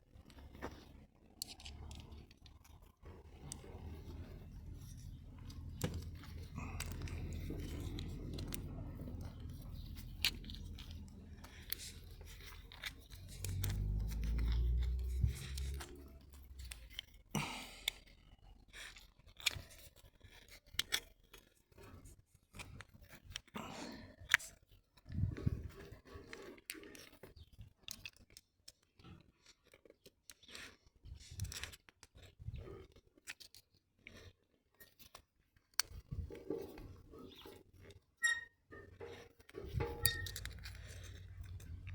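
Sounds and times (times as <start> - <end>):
tools clicking and scraping: 0.3 - 18.0, 35.8 - 41.9.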